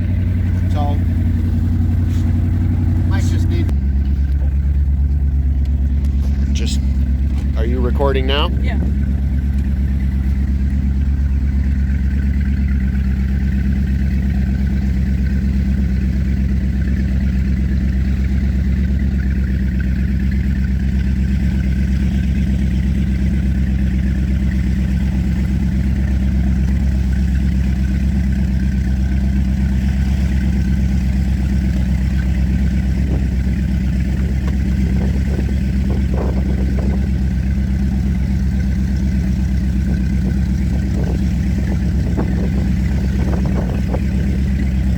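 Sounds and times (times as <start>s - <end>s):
powerboat engine droning: 0.0s - 44.9s.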